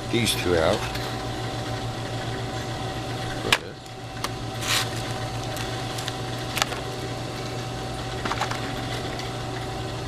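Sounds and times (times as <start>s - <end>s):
steady low hum: 0.0s - 10.0s
short scrape: 4.6s - 5.0s.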